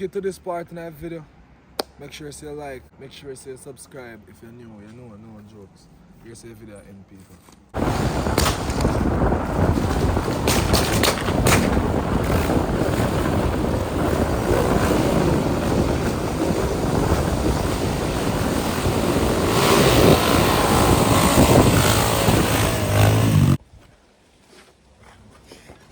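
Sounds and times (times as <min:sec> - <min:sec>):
motorcycle engine running: 0:07.8 - 0:23.6
wind buffeting microphone: 0:07.8 - 0:23.6.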